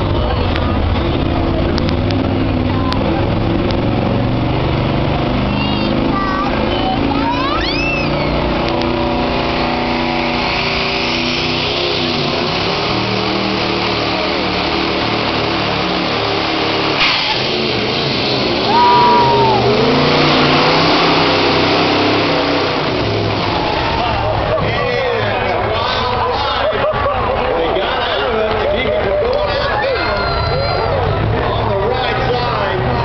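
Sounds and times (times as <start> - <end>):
diesel truck engine under load: 0.0 - 33.0.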